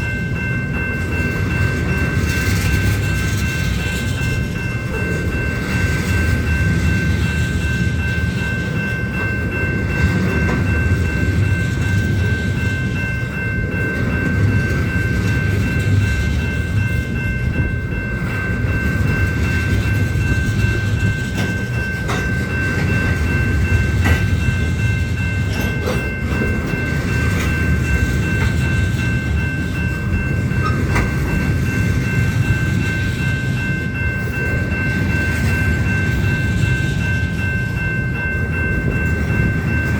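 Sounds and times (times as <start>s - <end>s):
train cars rumbling: 0.0s - 39.9s
wheels clacking over rail joints: 18.0s - 37.9s.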